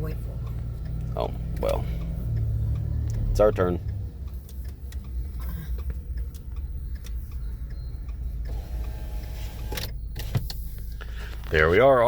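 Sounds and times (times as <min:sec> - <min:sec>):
car engine rumble from inside: 0:00.0 - 0:12.0.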